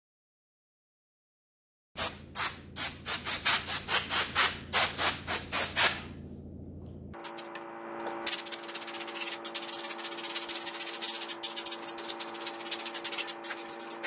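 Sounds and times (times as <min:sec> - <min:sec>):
air blow gun short blasts: 0:02.0 - 0:06.0
steady low hum: 0:02.0 - 0:14.0.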